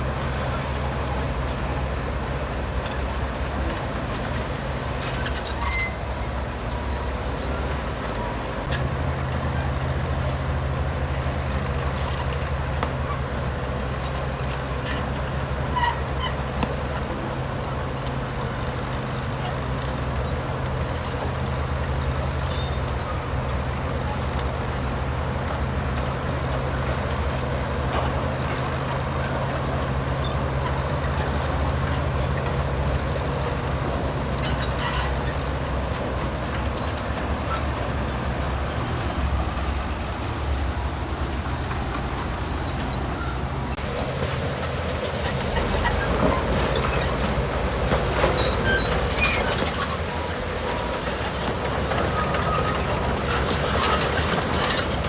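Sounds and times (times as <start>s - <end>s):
heavy diesel machinery engine: 0.0s - 55.0s
machinery clatter: 0.0s - 55.0s.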